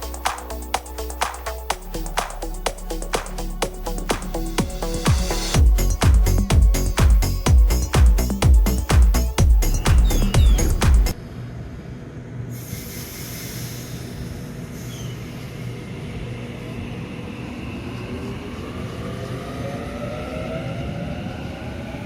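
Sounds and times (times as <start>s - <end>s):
electric train passing: 11.1s - 22.0s
short hiss: 12.5s - 15.0s
rising motor whine: 15.7s - 22.0s.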